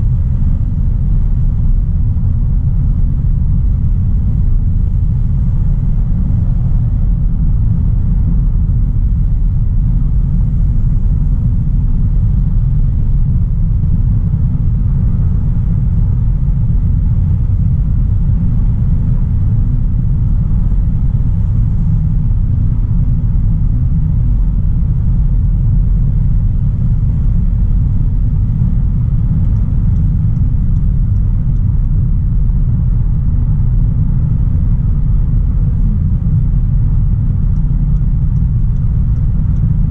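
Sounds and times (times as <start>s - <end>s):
car engine rumbling: 0.0s - 39.9s
road noise while driving: 0.0s - 39.9s.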